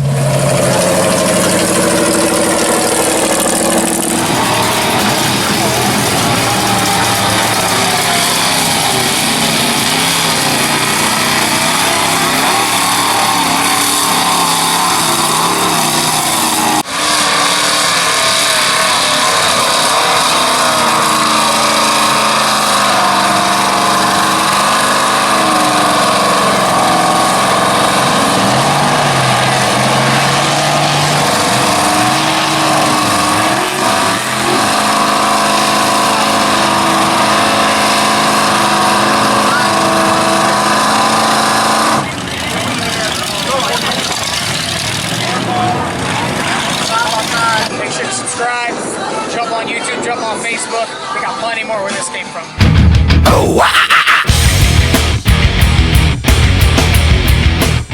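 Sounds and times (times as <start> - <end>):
truck engines revving: 0.0 - 51.6, 52.4 - 57.9.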